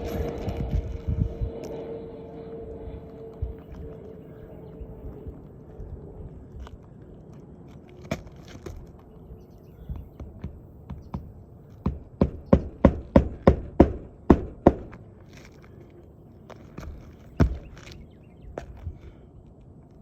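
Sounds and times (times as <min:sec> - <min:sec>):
hammer striking nails: 0:10.2 - 0:15.0.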